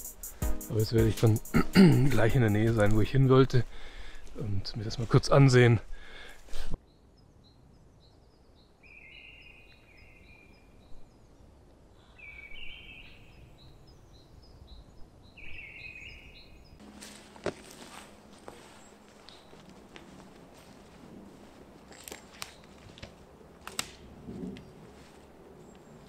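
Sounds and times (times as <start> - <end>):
footsteps on forest floor: 16.8 - 24.0, 24.6 - 26.0
rustling: 16.8 - 26.0.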